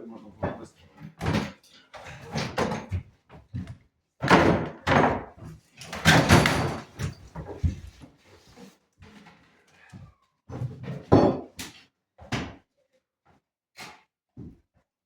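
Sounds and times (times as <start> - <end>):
renovation bangs and clatter: 4.2 - 7.9.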